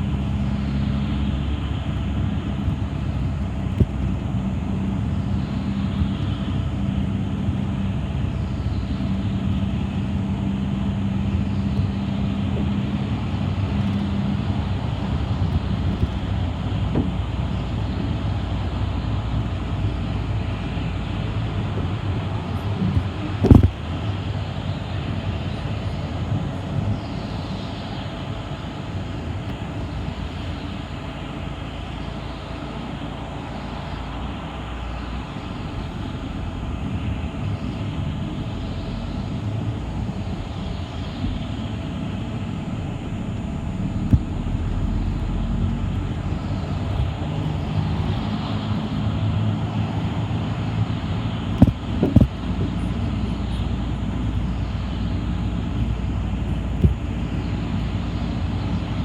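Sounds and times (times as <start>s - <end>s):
bus rumble from inside: 0.0s - 59.0s.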